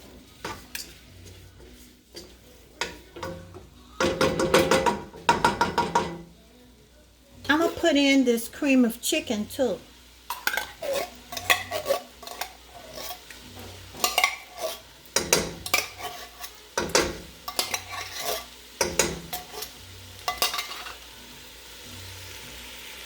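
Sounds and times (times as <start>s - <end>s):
low sizzle from pot: 0.0s - 23.0s
spoon scraping cooking pot: 0.4s - 6.2s, 10.3s - 21.1s.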